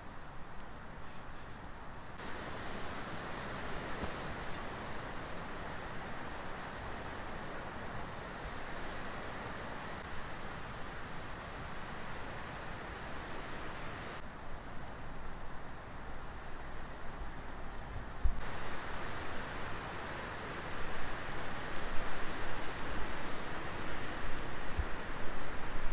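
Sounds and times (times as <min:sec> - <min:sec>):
wind rumbling on microphone: 0:16.5 - 0:25.9.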